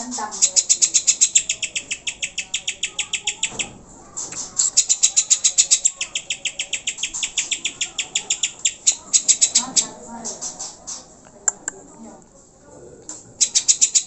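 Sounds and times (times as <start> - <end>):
bird calling sharp high notes: 0.3 - 3.8, 4.6 - 10.0, 13.4 - 14.0.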